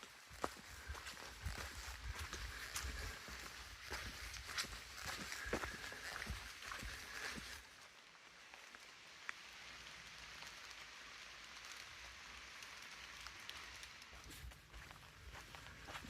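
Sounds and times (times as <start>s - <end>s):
footsteps on a trail: 0.0s - 7.9s, 13.5s - 16.0s
faint hiss of water: 0.0s - 16.0s.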